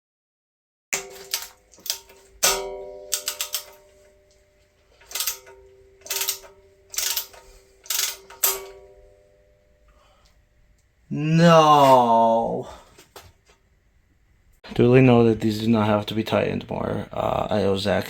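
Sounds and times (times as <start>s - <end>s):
wrench clicking: 1.0s - 4.2s, 5.0s - 8.9s
metal ringing: 1.0s - 10.0s.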